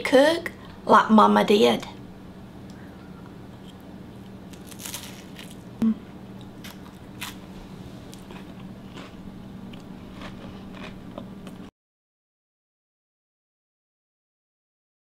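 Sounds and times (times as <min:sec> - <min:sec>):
faint steady hum: 0:00.0 - 0:11.7
cracker crunching while chewed: 0:03.6 - 0:05.7, 0:06.4 - 0:07.5, 0:08.1 - 0:11.7.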